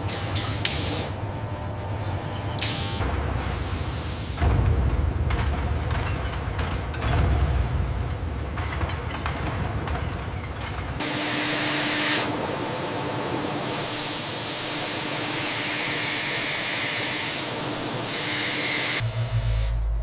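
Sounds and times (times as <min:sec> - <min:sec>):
steady air hiss: 0:02.6 - 0:04.5, 0:11.0 - 0:19.0.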